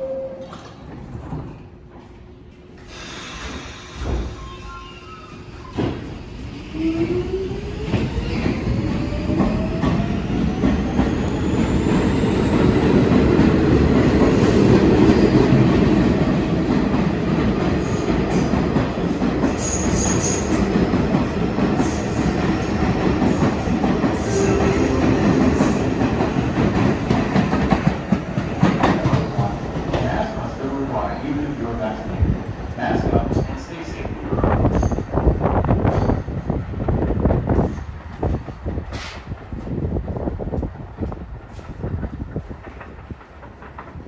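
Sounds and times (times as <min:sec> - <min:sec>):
subway train motors whining: 0:00.0 - 0:44.0
train wheel squeals: 0:02.8 - 0:06.1, 0:17.8 - 0:28.0, 0:35.8 - 0:36.4.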